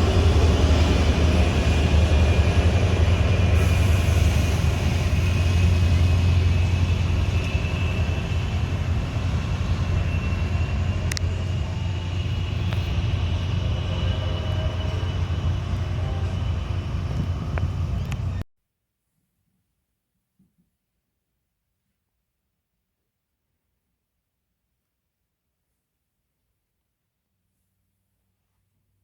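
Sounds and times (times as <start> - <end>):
train rumbling past: 0.0 - 18.4
steel wheel squeal: 0.1 - 18.4.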